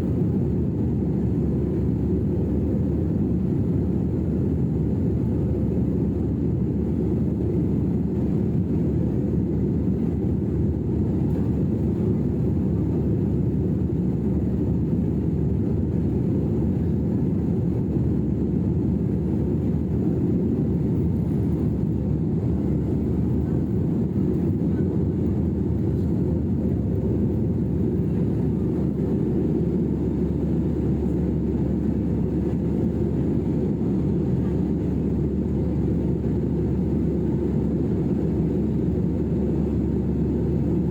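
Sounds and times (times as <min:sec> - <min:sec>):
jet engines rumbling in flight: 0:00.0 - 0:40.9.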